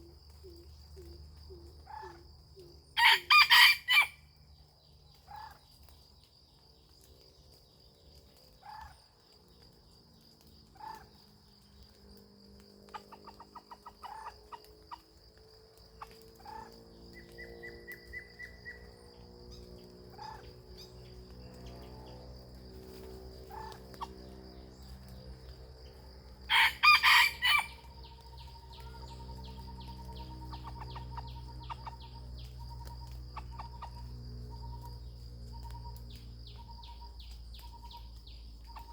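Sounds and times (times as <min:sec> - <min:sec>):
high insect drone: 0:00.0 - 0:38.9
rooster crowing: 0:03.0 - 0:04.2, 0:26.5 - 0:27.9.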